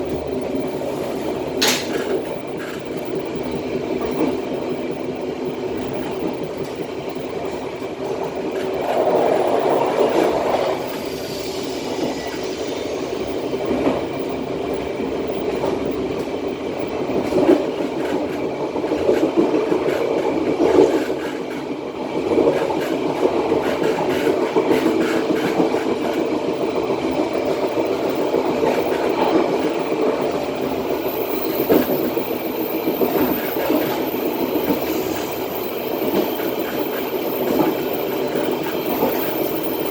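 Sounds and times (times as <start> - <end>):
train wheels rumbling on rail: 0.0 - 39.9
faint high-pitched whistle: 11.1 - 13.4.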